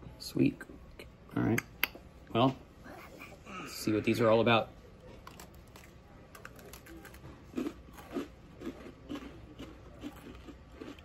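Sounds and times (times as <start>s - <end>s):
crunching chews: 5.2s - 11.0s.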